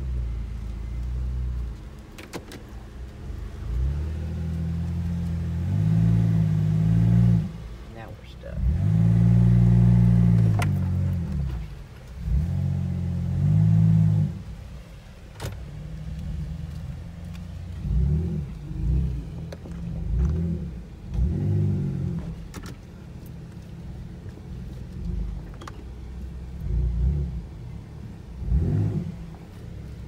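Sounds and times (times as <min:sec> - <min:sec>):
engine revving: 0:03.3 - 0:14.6, 0:15.4 - 0:22.7, 0:26.4 - 0:30.0.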